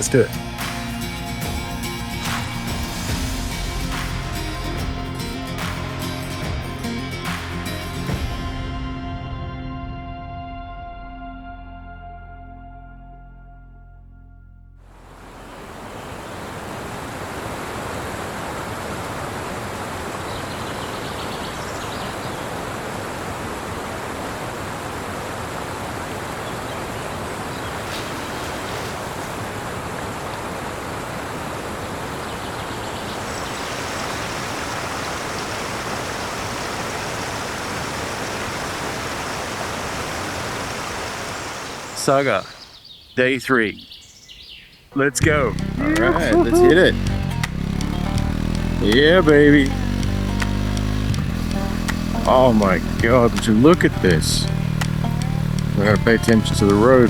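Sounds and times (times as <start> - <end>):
flowing river water: 14.9 - 42.8, 45.3 - 57.0.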